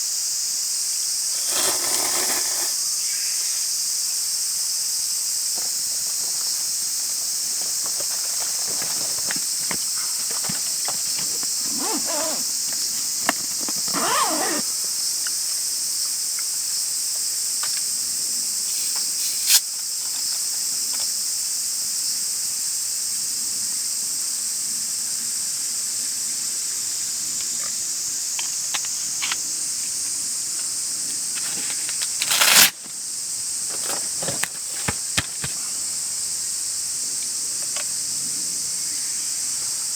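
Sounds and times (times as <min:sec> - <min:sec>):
insect chorus shrilling: 0:00.0 - 0:21.5, 0:25.3 - 0:39.9
rustles and clicks: 0:05.6 - 0:14.6, 0:31.3 - 0:32.9, 0:33.7 - 0:35.7.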